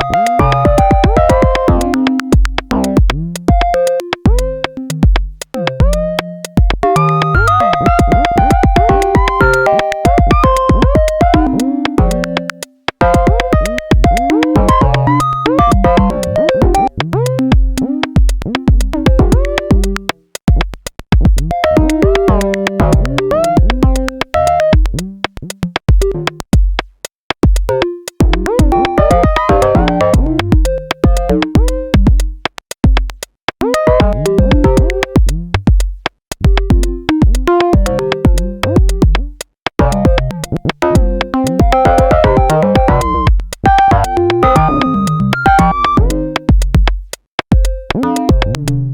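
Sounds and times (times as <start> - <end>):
synth notes at random pitches: 0.0 - 20.1, 27.7 - 32.1, 33.6 - 35.4, 36.5 - 46.5, 47.6 - 48.9
clicky percussion: 0.0 - 48.9
drum-machine kick pattern: 0.0 - 48.9.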